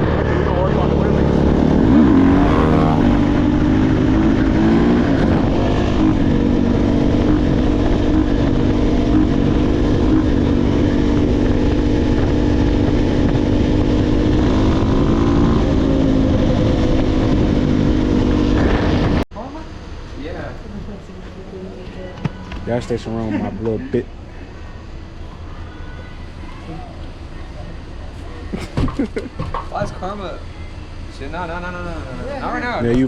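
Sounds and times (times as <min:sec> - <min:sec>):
dirt bike engine running: 0:00.0 - 0:19.2.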